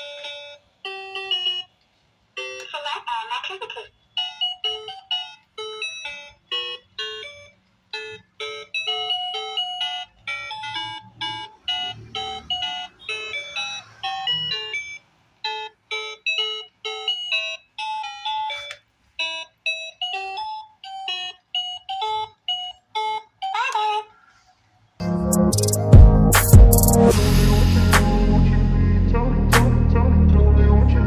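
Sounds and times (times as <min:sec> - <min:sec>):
toy beeping electronic melody: 0:00.0 - 0:01.8, 0:02.4 - 0:02.8, 0:03.5 - 0:24.1.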